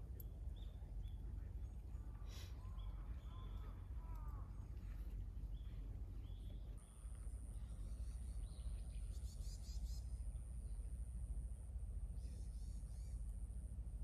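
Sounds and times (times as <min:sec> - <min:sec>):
birds calling: 0:00.0 - 0:10.8
steady low rumble: 0:00.0 - 0:14.0.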